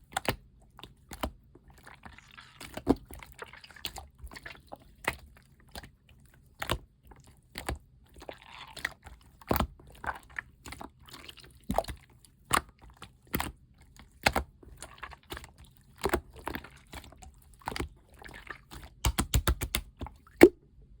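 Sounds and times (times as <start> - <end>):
slime clicking and popping: 18.9 - 20.6.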